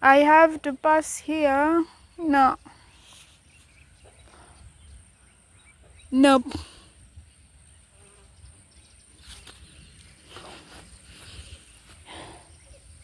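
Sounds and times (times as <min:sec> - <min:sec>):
footsteps rustling through vegetation: 0:09.2 - 0:12.2.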